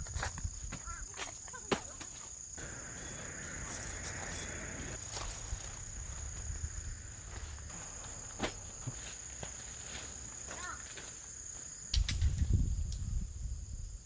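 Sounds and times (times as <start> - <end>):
insects chirring: 0.0 - 14.0
rustling: 2.6 - 12.4.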